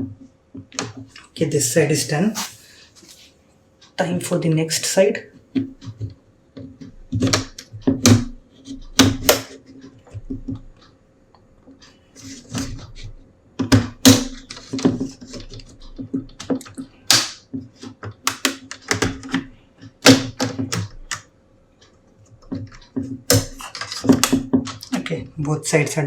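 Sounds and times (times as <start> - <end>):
plastic scraping on plastic: 22.3 - 25.3.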